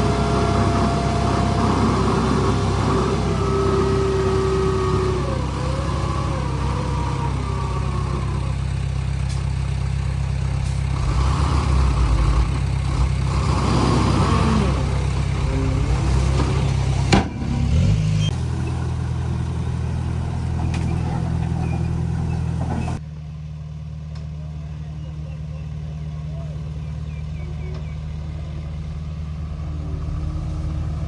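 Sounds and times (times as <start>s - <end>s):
wavering whining tones: 0.0s - 8.6s
bulldozer diesel engine running: 0.0s - 31.0s.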